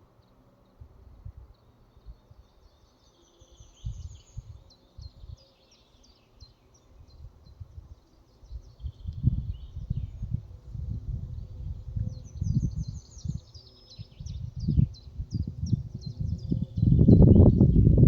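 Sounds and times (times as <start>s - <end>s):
songbirds chirping: 0.0s - 18.0s
wind rumbling on microphone: 3.5s - 5.4s, 6.9s - 18.0s.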